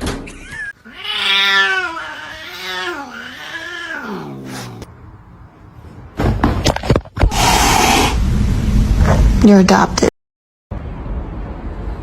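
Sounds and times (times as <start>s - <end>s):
cat yowling: 0.6s - 4.7s.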